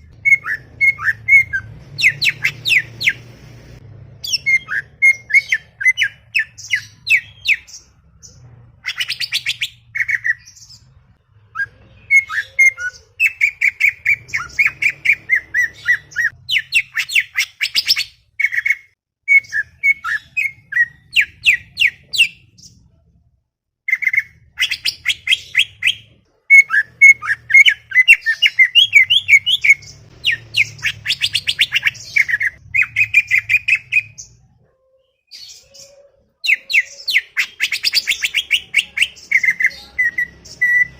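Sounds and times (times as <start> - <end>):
bird chattering song: 23.9 - 34.4, 35.0 - 40.9.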